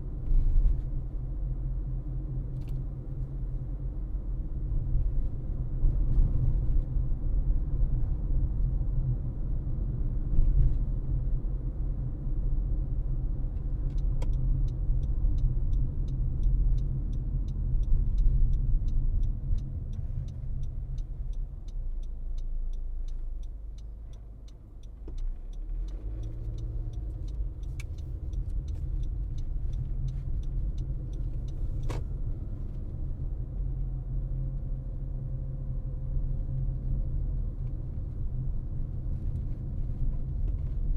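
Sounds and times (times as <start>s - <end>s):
car tyres and engine rumble: 0.0s - 40.9s
light regular ticking: 13.9s - 32.0s.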